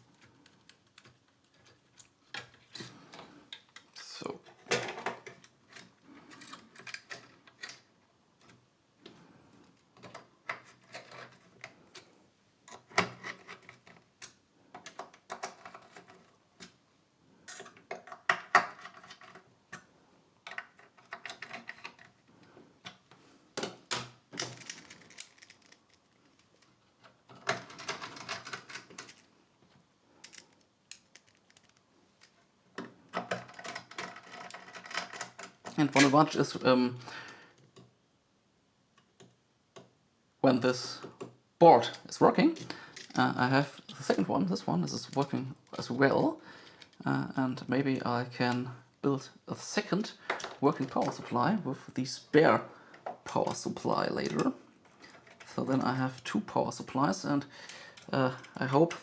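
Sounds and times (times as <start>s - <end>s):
small metal parts rattling: 23.6s - 29.3s, 30.2s - 32.4s, 33.1s - 36.3s.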